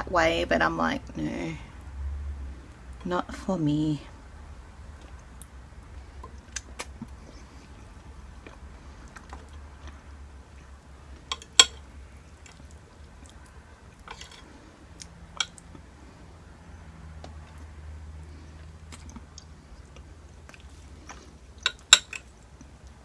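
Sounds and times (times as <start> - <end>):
low steady hum: 0.0 - 23.0
person chewing food: 4.8 - 16.2, 17.1 - 23.0.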